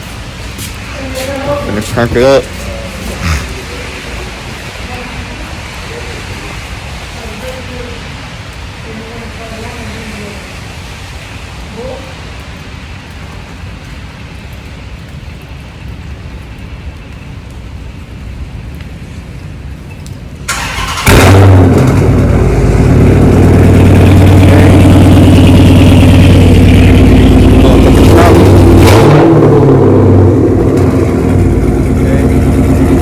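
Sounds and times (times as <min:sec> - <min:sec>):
steady hiss: 0:00.0 - 0:21.0, 0:21.7 - 0:28.8
car engine idling: 0:20.5 - 0:33.0.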